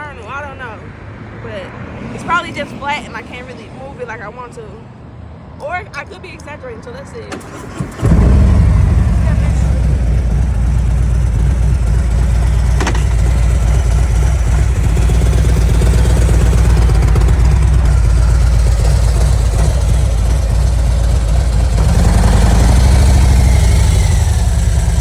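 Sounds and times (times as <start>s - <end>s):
motorcycle engine rumbling: 7.4s - 25.0s.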